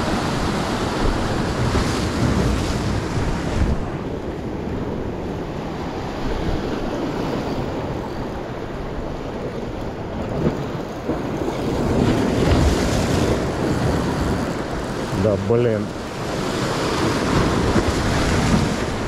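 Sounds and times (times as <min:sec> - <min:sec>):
sea waves washing against rocks: 0:00.0 - 0:19.0
wind buffeting microphone: 0:00.0 - 0:19.0.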